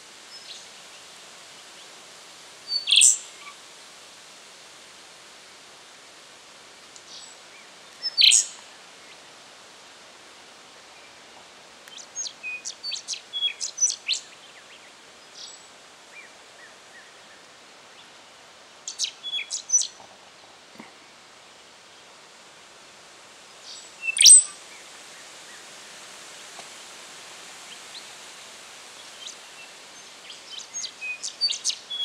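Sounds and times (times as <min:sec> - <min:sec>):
steady background hiss: 0:00.0 - 0:32.0
songlark singing: 0:02.7 - 0:03.2, 0:08.0 - 0:08.6, 0:11.9 - 0:14.3, 0:18.9 - 0:20.0, 0:24.0 - 0:24.6, 0:30.2 - 0:32.0.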